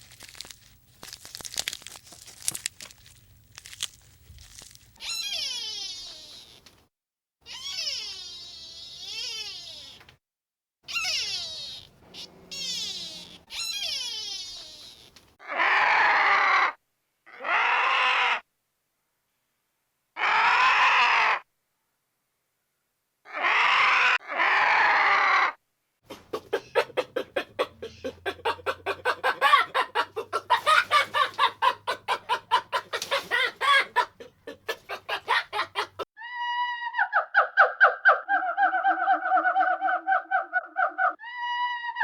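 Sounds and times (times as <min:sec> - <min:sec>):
fluttering tonal animal call: 0:05.0 - 0:06.6, 0:07.5 - 0:10.0, 0:10.9 - 0:15.1, 0:26.1 - 0:36.0
harsh animal calls: 0:05.0 - 0:06.6, 0:07.5 - 0:10.1, 0:10.9 - 0:18.4, 0:20.2 - 0:21.4, 0:23.3 - 0:36.1
chickens clucking: 0:26.1 - 0:36.0.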